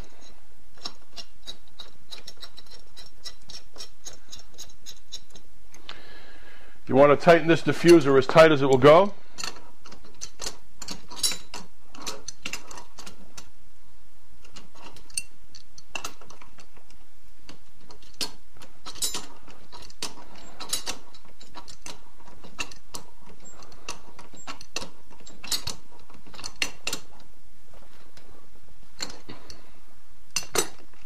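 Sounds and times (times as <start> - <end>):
steady background hiss: 0.0 - 31.0
metal clicks of hand tool: 0.2 - 5.8.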